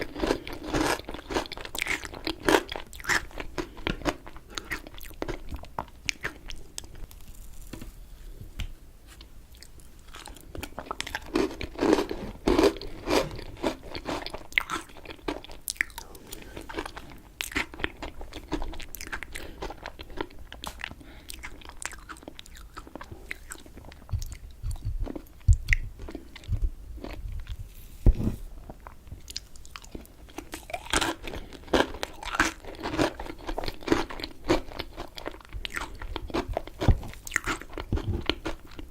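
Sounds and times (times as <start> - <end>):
wet chewing and mouth smacks: 9.5 - 27.6, 28.8 - 38.9.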